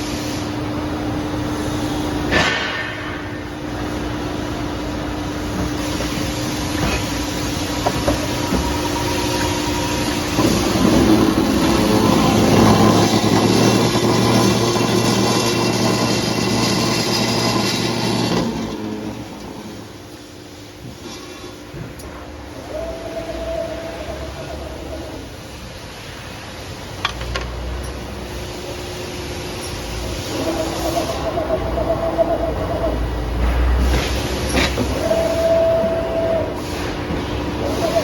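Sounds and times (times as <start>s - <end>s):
cold saw humming: 6.4s - 20.4s, 22.0s - 25.9s.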